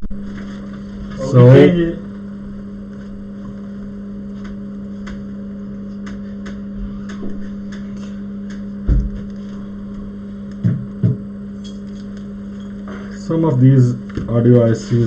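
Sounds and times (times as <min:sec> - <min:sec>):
electrical hum of bench equipment: 0:00.0 - 0:15.0
dull knock: 0:10.6 - 0:11.2.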